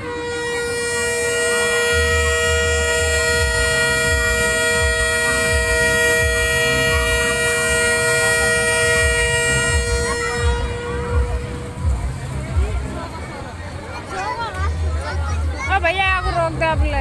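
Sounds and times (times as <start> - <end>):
horn sounding a chord: 0.0 - 13.4
low uneven thumping: 3.2 - 13.2, 14.7 - 17.0.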